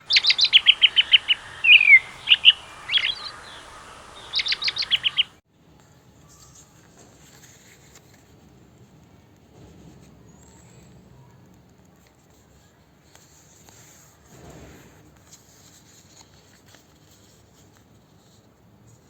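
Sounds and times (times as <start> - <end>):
songbird singing trills: 0.0 - 5.4.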